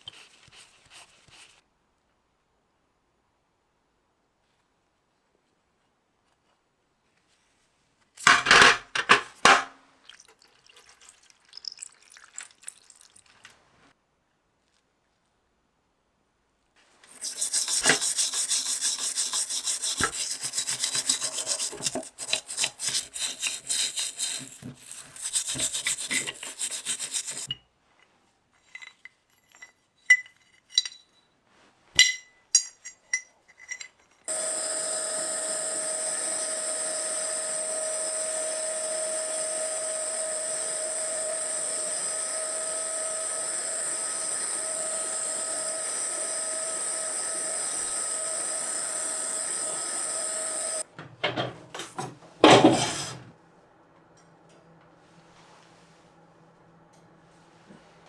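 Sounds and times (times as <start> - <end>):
air hissing with whistling tone: 17.1 - 21.4, 34.3 - 50.8
filing strokes on workpiece: 17.1 - 27.5, 34.3 - 50.8, 52.6 - 53.3.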